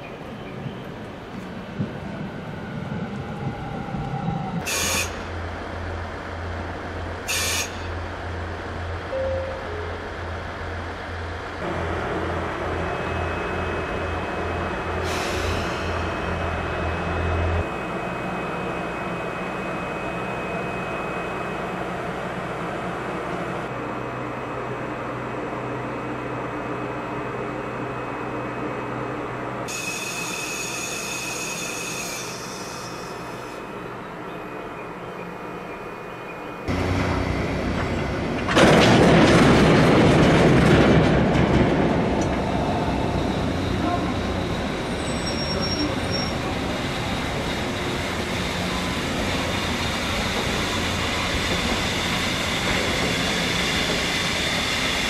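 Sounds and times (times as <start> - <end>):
train wheels rolling on rails: 29.6 - 55.0.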